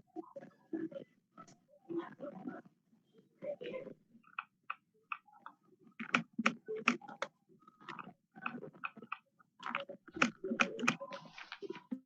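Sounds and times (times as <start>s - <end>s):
irregular tapping clicks: 6.0s - 7.2s, 7.9s - 11.1s.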